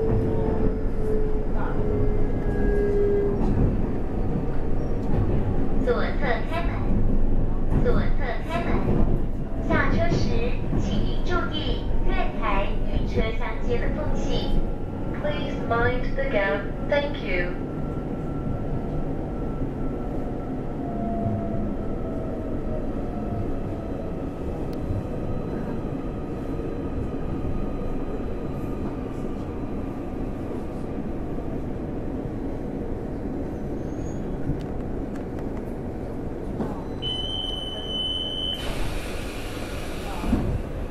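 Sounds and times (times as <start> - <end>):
train running rumble: 0.0 - 17.4
air hiss of doors opening: 38.5 - 40.6.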